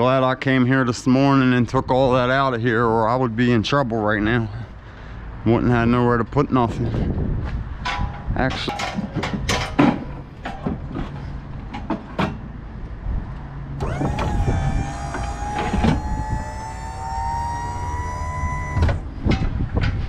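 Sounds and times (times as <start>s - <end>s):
electric motor whining: 13.8s - 19.3s.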